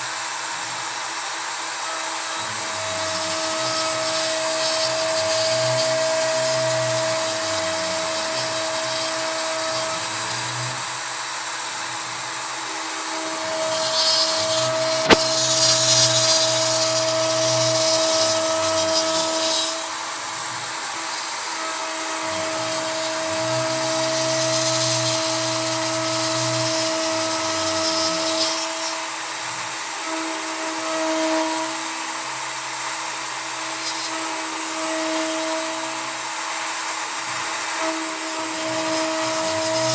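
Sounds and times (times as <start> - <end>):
router spindle whine: 0.0 - 39.9
rough cutting hiss: 12.9 - 20.0
sharp click: 13.9 - 17.1.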